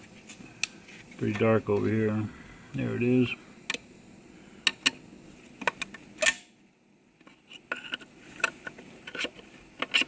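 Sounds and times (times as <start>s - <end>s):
screwdriver clicking and scraping metal: 7.5s - 10.0s.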